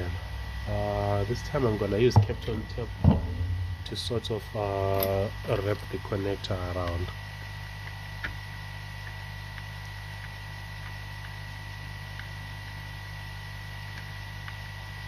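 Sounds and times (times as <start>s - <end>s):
faint high whine: 0.0s - 7.5s
electrical mains hum: 0.0s - 15.0s.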